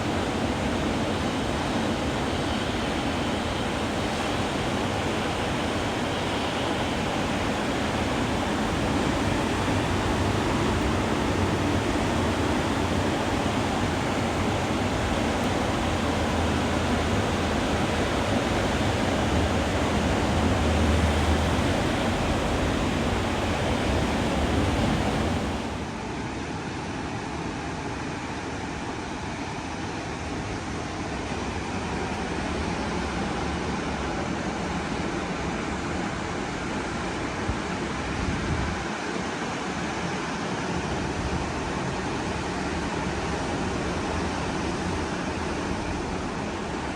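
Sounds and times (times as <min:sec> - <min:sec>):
ocean surf breaking on beach: 0:00.0 - 0:26.0.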